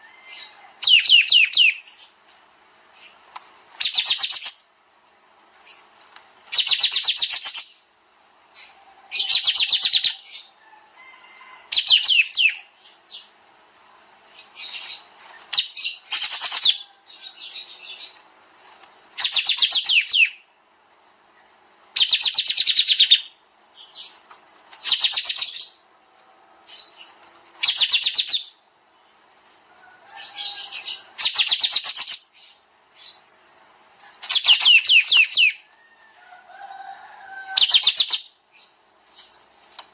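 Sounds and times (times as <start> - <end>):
soft bird chirps: 30.2 - 35.7.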